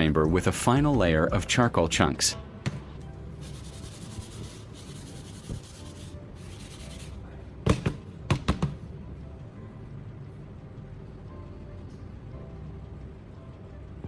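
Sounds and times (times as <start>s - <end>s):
charcoal scraping on metal: 3.3s - 7.3s.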